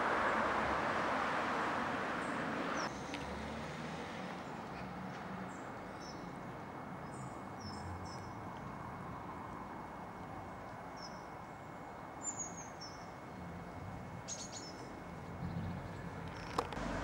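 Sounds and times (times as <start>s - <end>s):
small birds chirping: 14.3s - 16.7s.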